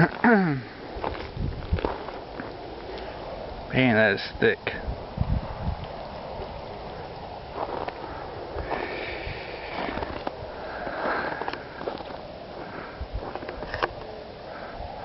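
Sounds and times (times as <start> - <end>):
person sniffing and breathing: 8.0 - 13.0.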